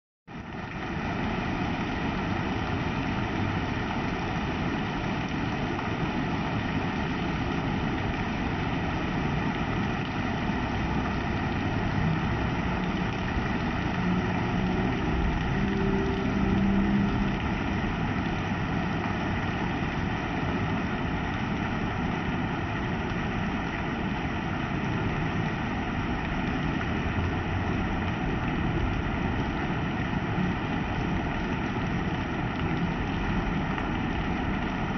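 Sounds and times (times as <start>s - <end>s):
heavy rain hissing: 0.3s - 34.9s
low drone: 9.9s - 21.0s.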